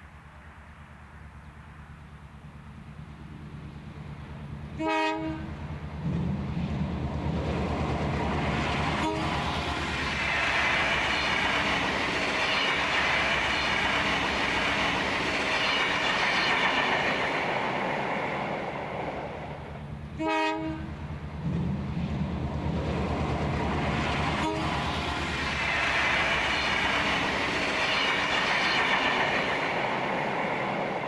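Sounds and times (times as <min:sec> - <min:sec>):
diesel locomotive engine drone: 0:00.0 - 0:31.0
train horn toot: 0:04.8 - 0:05.6, 0:08.9 - 0:10.0, 0:20.2 - 0:21.0, 0:24.3 - 0:25.3.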